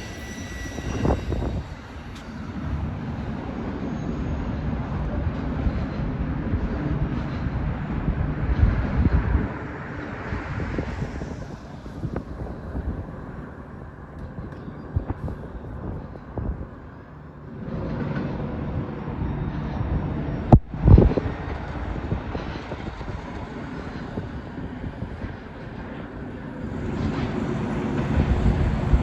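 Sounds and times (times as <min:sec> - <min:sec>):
train wheel clatter: 0:00.0 - 0:19.4
freight train rumbling past: 0:00.0 - 0:29.0.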